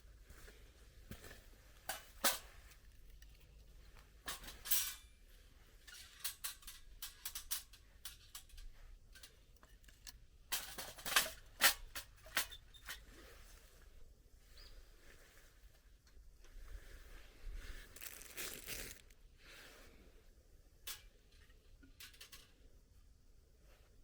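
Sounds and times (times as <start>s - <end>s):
campfire wood crackling: 17.6s - 19.2s.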